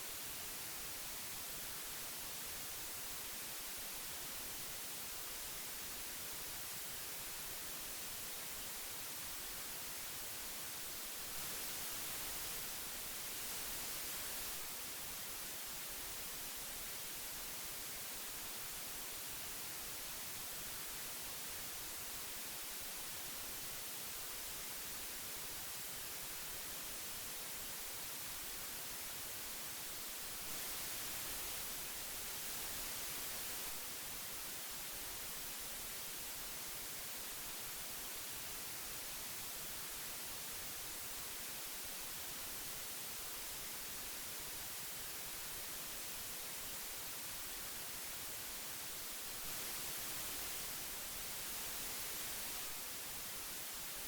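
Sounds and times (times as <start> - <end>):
tape hiss: 0.0 - 54.0.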